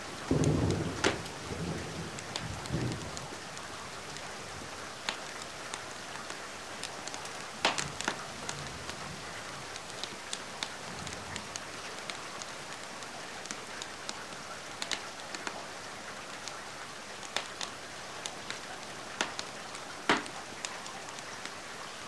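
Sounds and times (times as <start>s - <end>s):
rain hiss: 0.0s - 22.0s
wood fire crackling and popping: 0.3s - 15.6s, 17.2s - 21.6s.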